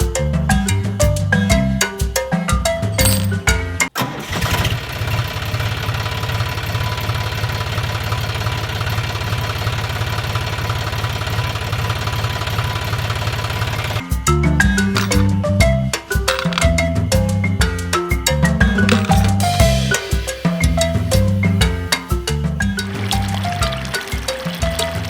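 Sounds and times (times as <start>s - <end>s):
tractor engine chugging: 4.0s - 14.0s
background music: 14.0s - 25.0s.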